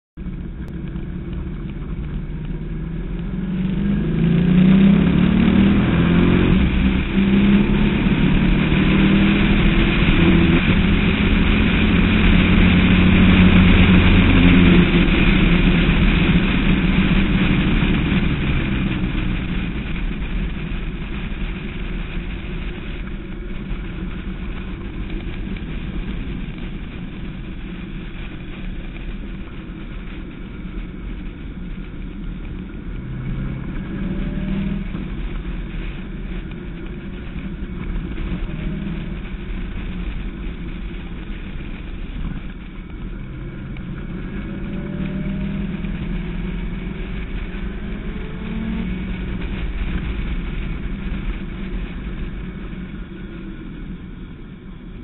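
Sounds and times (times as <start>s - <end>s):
car engine accelerating hard: 0.2s - 55.0s.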